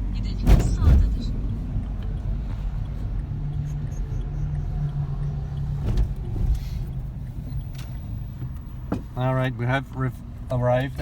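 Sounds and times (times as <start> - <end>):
diesel car engine rumble: 0.0 - 11.0
road noise: 0.0 - 11.0.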